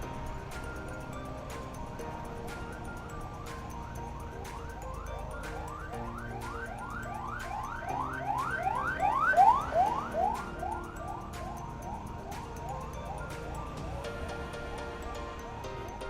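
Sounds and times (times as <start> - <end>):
ambulance siren yelping: 3.6 - 15.5.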